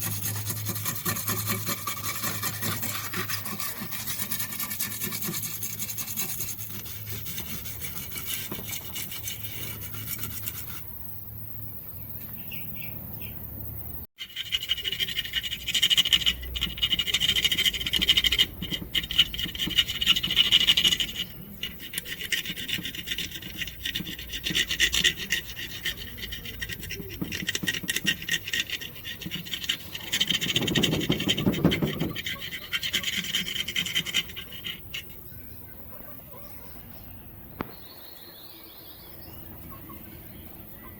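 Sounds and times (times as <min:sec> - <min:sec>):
hand scraping and rubbing: 0:00.0 - 0:10.9, 0:14.3 - 0:36.1.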